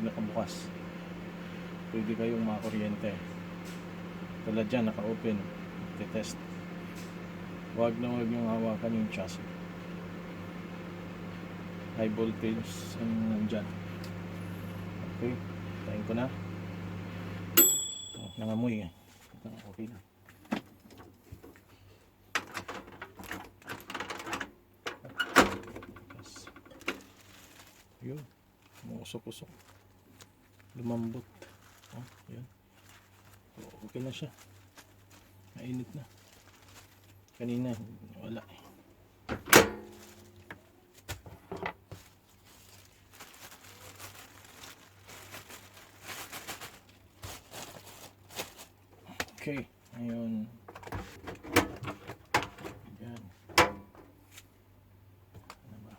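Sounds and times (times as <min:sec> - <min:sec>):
steady low hum: 0:00.0 - 0:19.0
clattering at microwave oven: 0:04.7 - 0:09.3, 0:39.3 - 0:40.1, 0:50.7 - 0:52.9, 0:53.5 - 0:54.2
faint rustling handling noises: 0:18.1 - 0:54.7.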